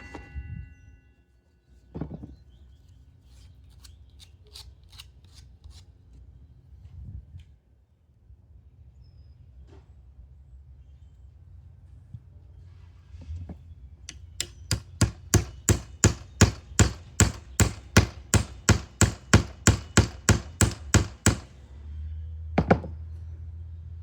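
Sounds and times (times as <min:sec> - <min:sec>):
hammer striking wood: 0:14.1 - 0:21.5, 0:22.6 - 0:23.0.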